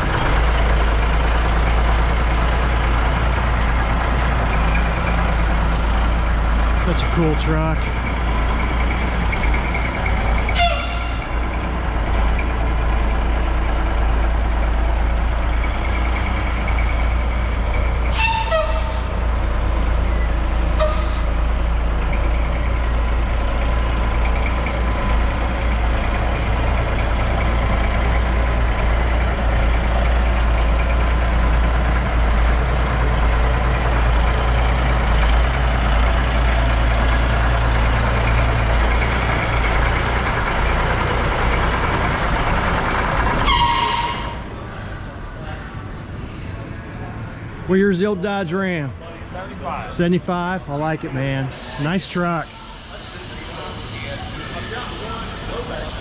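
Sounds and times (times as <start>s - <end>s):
truck engine rumbling: 0.0s - 56.0s
short sharp air hisses: 51.5s - 56.0s.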